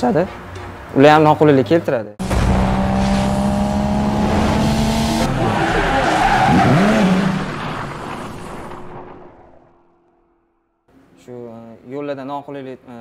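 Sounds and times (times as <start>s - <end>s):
car engine high note: 2.2s - 7.6s.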